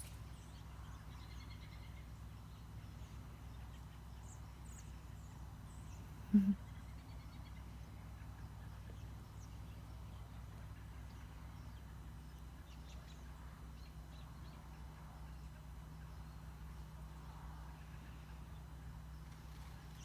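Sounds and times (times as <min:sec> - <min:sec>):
large flock of birds chirping: 0:00.0 - 0:20.0
steady low hum: 0:00.0 - 0:20.0.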